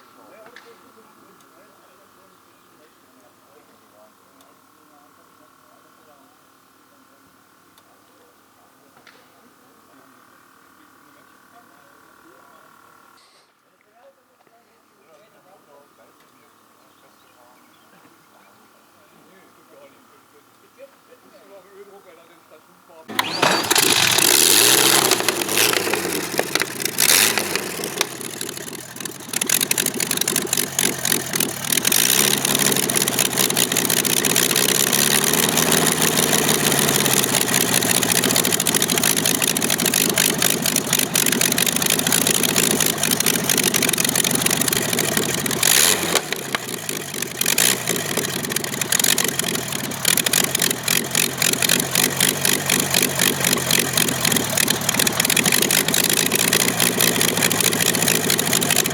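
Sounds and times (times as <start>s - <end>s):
aircraft engine running: 23.1s - 58.9s.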